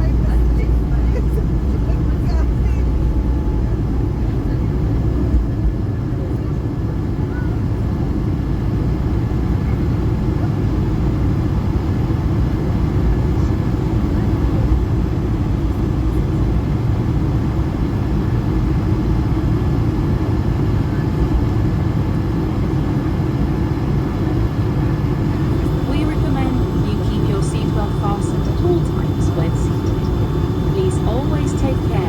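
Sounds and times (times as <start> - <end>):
aircraft cabin engine rumble: 0.0 - 32.0
faint steady tones: 24.5 - 32.0.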